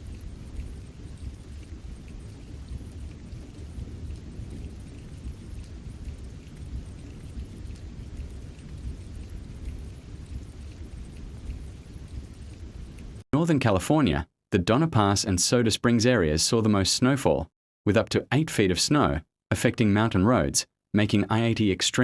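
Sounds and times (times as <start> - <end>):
faint scattered ticks: 0.0 - 13.2
low rumbling storm noise: 0.0 - 13.2.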